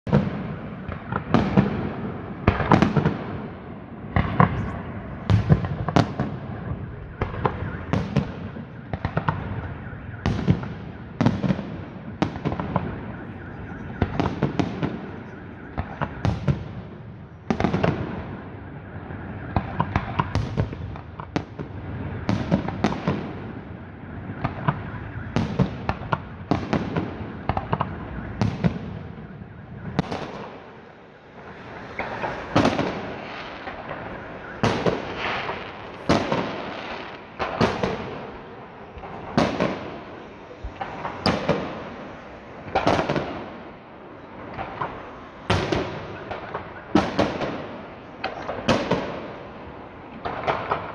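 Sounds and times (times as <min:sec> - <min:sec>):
fireworks banging: 0:00.1 - 0:50.9
rumbling echo: 0:00.6 - 0:18.3, 0:29.8 - 0:50.9.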